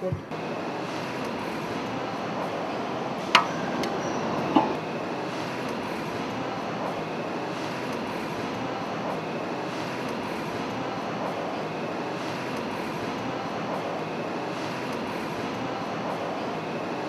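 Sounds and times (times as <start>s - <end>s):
steady mechanical drone: 0.0s - 17.0s
sharp metallic clanks: 3.2s - 4.8s.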